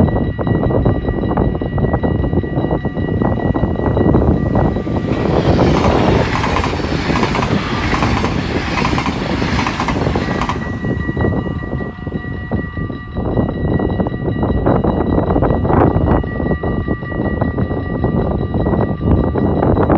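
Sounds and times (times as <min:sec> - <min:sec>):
crossing warning bell ringing: 0:00.0 - 0:19.9
train rushing rumble: 0:01.0 - 0:16.1.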